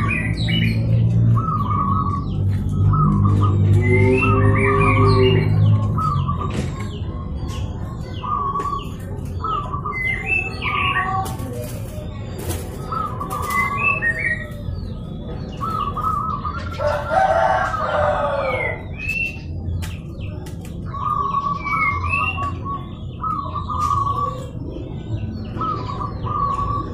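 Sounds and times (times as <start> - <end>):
doves cooing: 0.0 - 19.6, 20.4 - 26.9
small birds chirping: 0.0 - 26.9.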